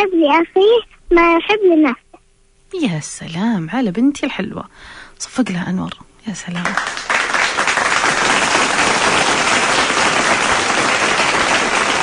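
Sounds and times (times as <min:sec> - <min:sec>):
applause: 0:06.5 - 0:12.0.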